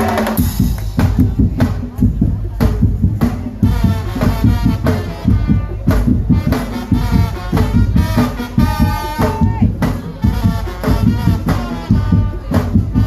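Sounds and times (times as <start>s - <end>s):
fast drums and slit drums: 0.0s - 13.0s.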